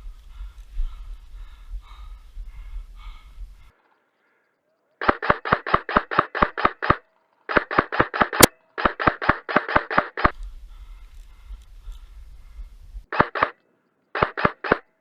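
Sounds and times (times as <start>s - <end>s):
airsoft gun firing shots: 5.0s - 10.4s, 13.1s - 13.6s, 14.2s - 14.8s.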